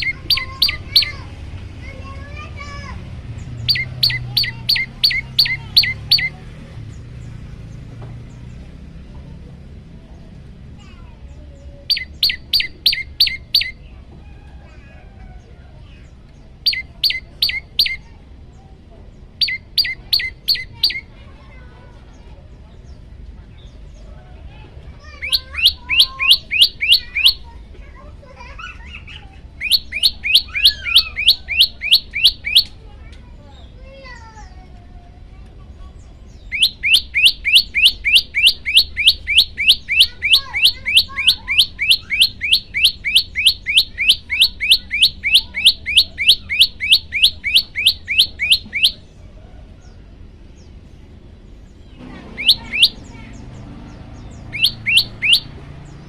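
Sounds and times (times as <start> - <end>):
bird calling sharp falling notes: 0.0 - 2.9, 3.6 - 6.4, 11.9 - 15.4, 19.4 - 21.1, 25.0 - 27.6, 28.3 - 32.8, 36.4 - 49.2, 51.9 - 56.0
faint bird chirps: 0.0 - 34.7, 35.4 - 56.0.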